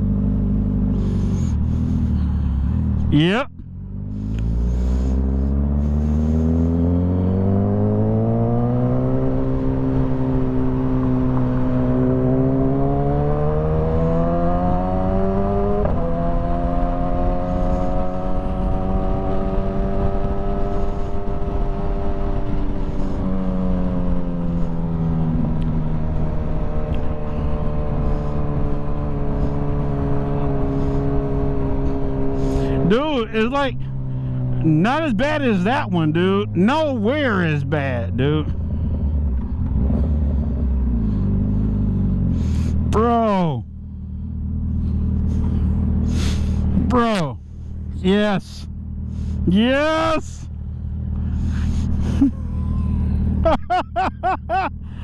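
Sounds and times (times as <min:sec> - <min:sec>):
gear change: 0:00.2 - 0:55.0
motorcycle engine pulling hard: 0:04.2 - 0:43.5.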